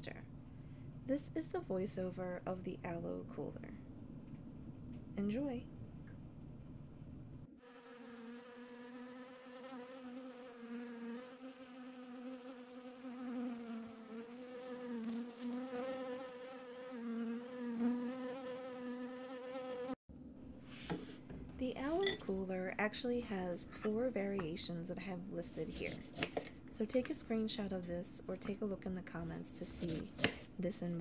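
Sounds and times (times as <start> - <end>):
bee buzzing: 7.6 - 20.0.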